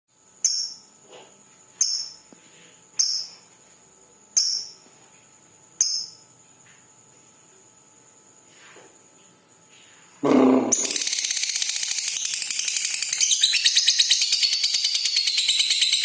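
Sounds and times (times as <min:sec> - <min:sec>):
lovebird shrill chirps: 0:00.4 - 0:00.8, 0:03.0 - 0:03.4, 0:04.4 - 0:04.8, 0:10.4 - 0:16.0.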